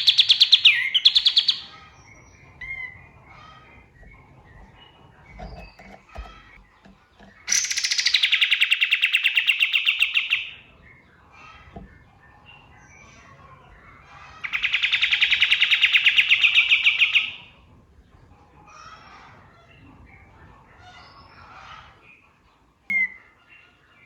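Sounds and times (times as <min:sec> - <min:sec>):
songbird rattling trills: 0:00.0 - 0:11.1
faint bird chirps: 0:22.9 - 0:24.0.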